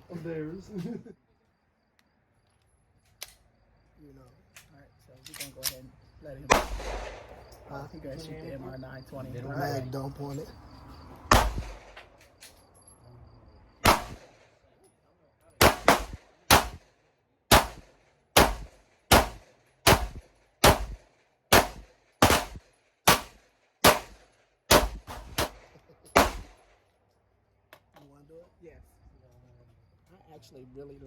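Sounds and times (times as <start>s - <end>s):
pistol shots: 6.5s - 7.4s, 11.3s - 12.1s, 13.8s - 14.4s, 15.6s - 16.9s, 17.5s - 26.7s.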